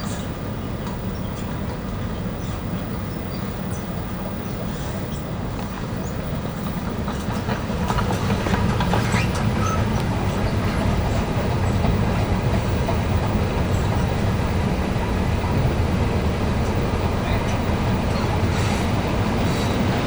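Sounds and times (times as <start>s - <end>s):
escalator rumbling: 6.0s - 20.0s
escalator steps clicking: 6.7s - 20.0s.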